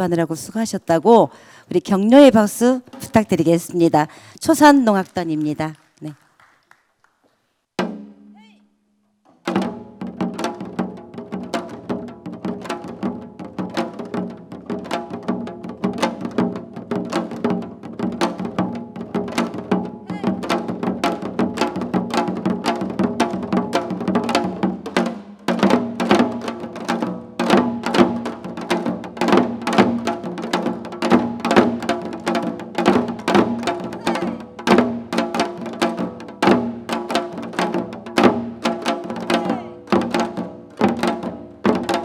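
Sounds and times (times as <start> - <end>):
hourglass drums played fast: 9.5 - 42.0.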